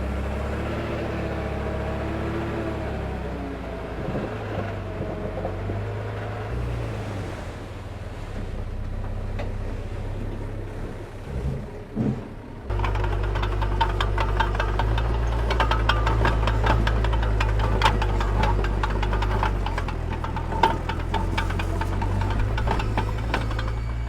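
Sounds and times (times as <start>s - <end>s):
diesel engine running: 0.0s - 24.0s
rapid metallic clatter: 12.7s - 24.0s.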